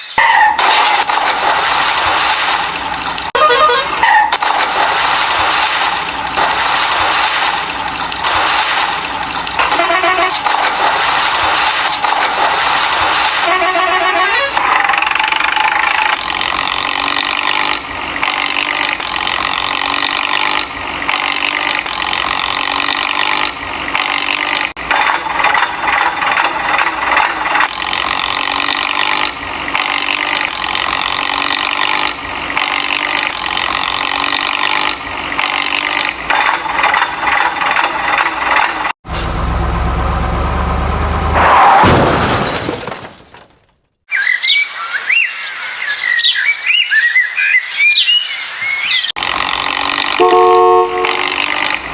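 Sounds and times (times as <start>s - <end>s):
toy motor and gears running: 15.8s - 38.9s, 49.2s - 51.9s
rattling and scraping: 24.4s - 29.3s.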